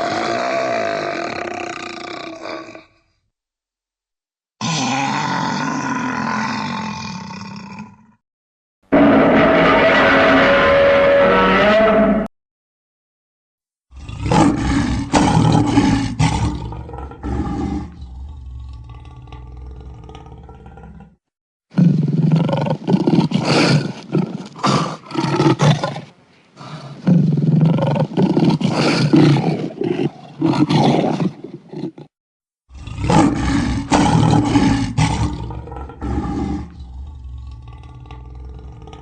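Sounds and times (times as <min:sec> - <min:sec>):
creature roaring: 0:00.0 - 0:03.0, 0:04.6 - 0:08.2, 0:08.9 - 0:12.3, 0:13.9 - 0:21.2, 0:32.7 - 0:39.0.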